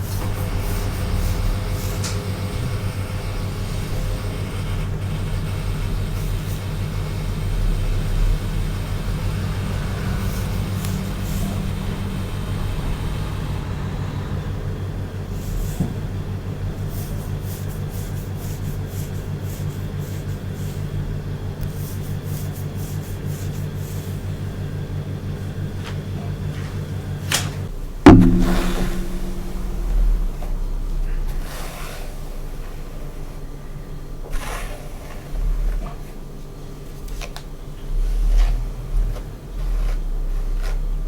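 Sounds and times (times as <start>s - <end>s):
low electrical hum: 2.5s - 31.5s
sharp loud knock: 28.1s - 30.6s.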